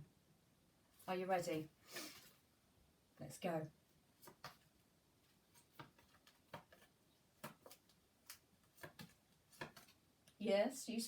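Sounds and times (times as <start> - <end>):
cardboard flashcards being flicked: 5.6 - 10.0.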